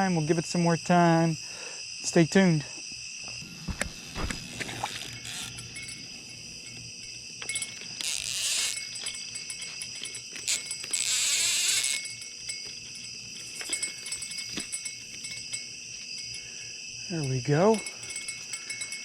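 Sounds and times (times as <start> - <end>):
metallic bite alarm jingling: 4.4 - 19.0.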